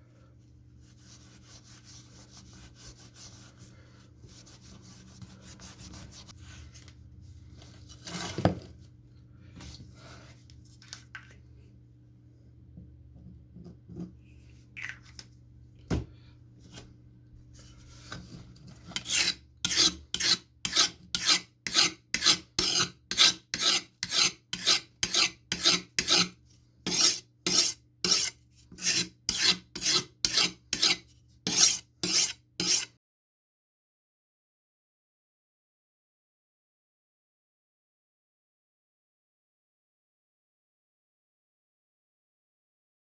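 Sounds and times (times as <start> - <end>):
knife rasping on sharpening stone: 19.0 - 32.9.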